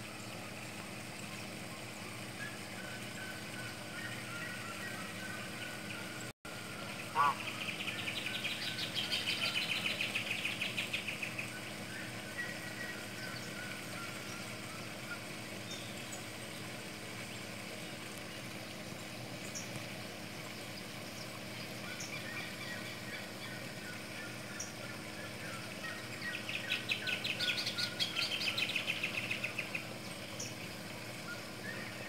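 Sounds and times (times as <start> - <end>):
steady low hum: 0.0 - 32.0
faint bird chirps: 2.4 - 16.2
bird trilling: 7.0 - 10.0.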